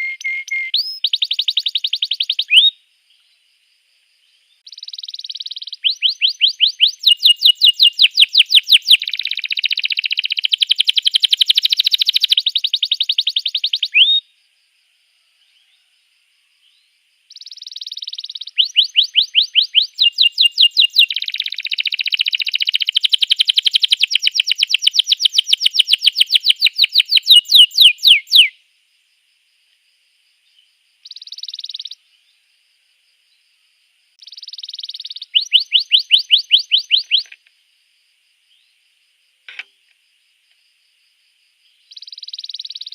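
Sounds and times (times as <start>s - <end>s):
canary singing trills: 0.0s - 3.3s, 4.6s - 14.3s, 16.7s - 28.6s, 31.0s - 32.0s, 34.2s - 37.4s, 41.9s - 42.9s.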